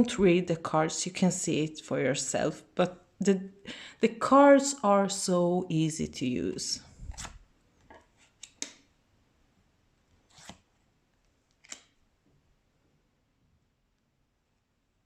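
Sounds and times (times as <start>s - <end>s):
cards clicking and swishing: 7.0s - 7.4s, 8.0s - 8.9s, 10.3s - 10.7s, 11.5s - 12.0s.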